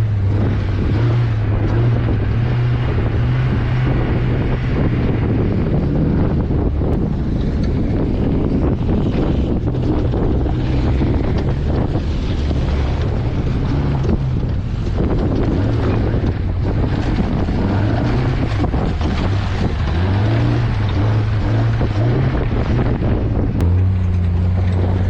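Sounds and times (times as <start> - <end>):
vehicle engine running under load: 0.0 - 25.0
wind buffeting microphone: 0.0 - 25.0.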